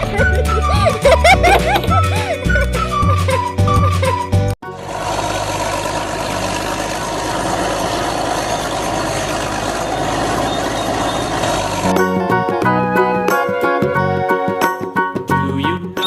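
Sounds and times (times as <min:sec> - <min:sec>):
vehicle engine running: 0:04.6 - 0:12.1.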